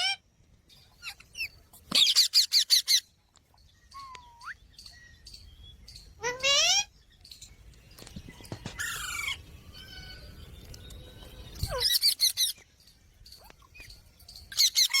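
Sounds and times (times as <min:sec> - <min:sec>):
parrot squawking: 0:06.2 - 0:06.9.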